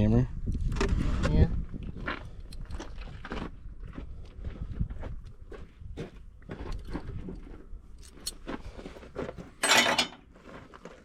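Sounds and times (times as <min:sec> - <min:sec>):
hand tools clinking: 0:09.6 - 0:10.2.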